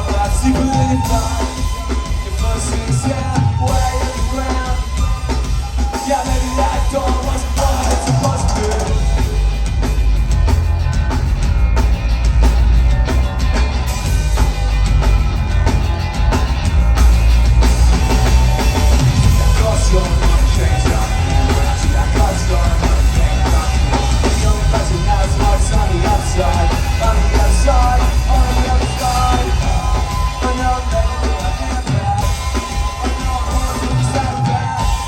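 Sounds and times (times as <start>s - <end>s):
wavering voice: 0.0s - 9.5s
live rock band: 0.0s - 35.0s.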